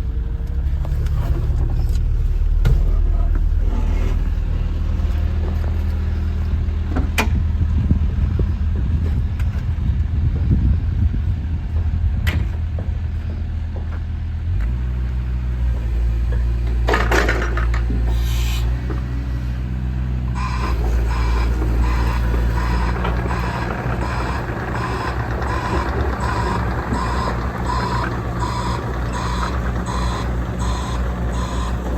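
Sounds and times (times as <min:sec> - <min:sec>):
diesel engine running: 0:00.0 - 0:31.9
repeating beep: 0:24.9 - 0:31.8.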